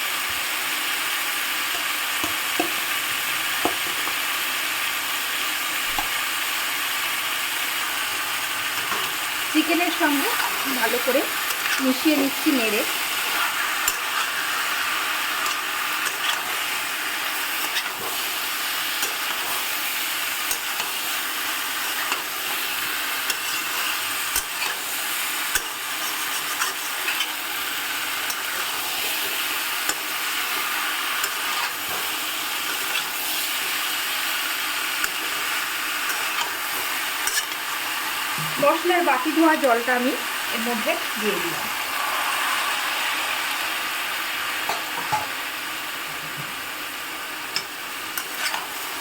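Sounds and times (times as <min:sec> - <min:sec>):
food sizzling in oil: 0:00.0 - 0:49.0
spatula scraping a pan: 0:10.2 - 0:33.8, 0:34.9 - 0:37.7, 0:47.6 - 0:48.8.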